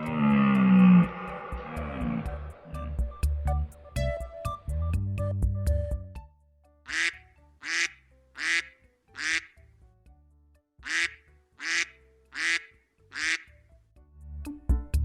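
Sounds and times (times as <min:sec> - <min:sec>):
duck quacking: 0:06.9 - 0:09.6, 0:10.8 - 0:13.5.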